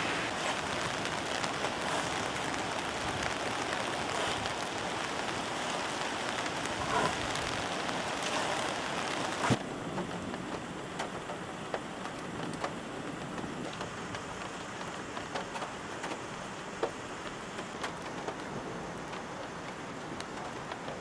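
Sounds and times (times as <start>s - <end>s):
rain hissing: 0.0s - 21.0s.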